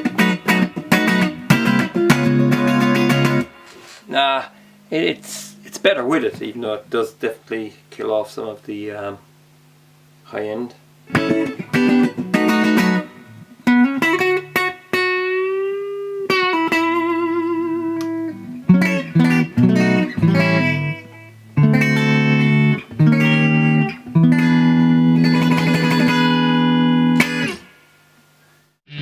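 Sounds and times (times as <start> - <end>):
electric guitar notes and chords: 0.0 - 4.0, 11.1 - 28.0.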